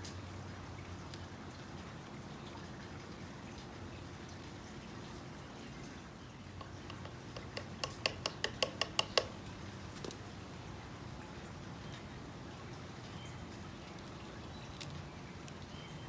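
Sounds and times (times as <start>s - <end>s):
sharp clicks of basket weaving: 6.6s - 9.4s.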